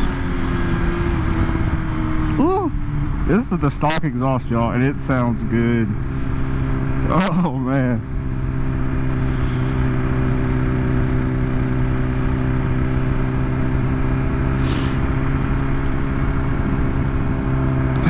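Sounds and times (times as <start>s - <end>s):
motorcycle engine cruising: 0.0s - 18.0s
brief hiss: 14.6s - 15.0s.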